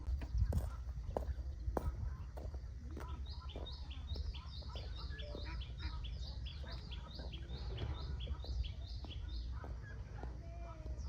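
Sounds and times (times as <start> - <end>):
bird chirping: 3.2 - 9.7.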